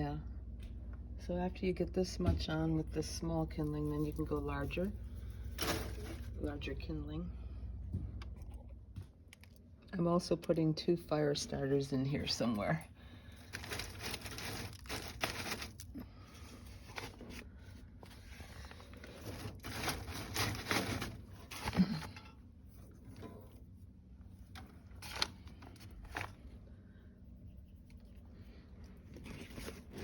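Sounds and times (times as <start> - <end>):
paper rustling: 13.2 - 22.2, 24.9 - 26.6, 29.1 - 30.0.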